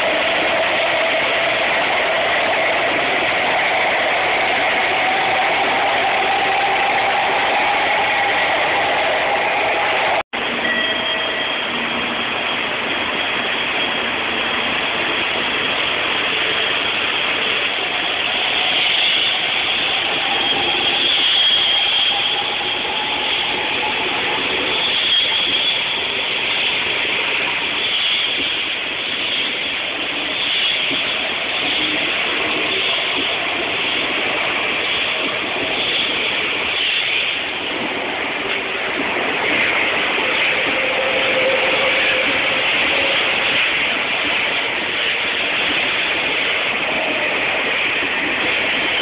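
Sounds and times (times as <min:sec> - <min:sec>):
train motor whine rising: 0:00.0 - 0:37.9
train rushing past: 0:00.0 - 0:49.0.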